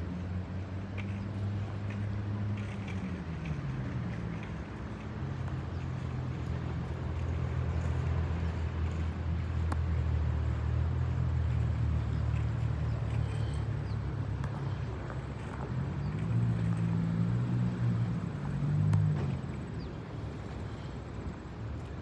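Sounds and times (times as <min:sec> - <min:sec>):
jet airliner droning overhead: 0:02.6 - 0:22.0.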